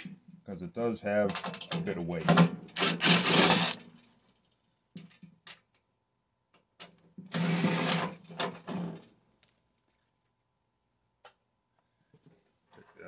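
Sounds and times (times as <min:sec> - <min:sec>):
cordless drill running: 0:02.8 - 0:03.8, 0:07.4 - 0:08.0.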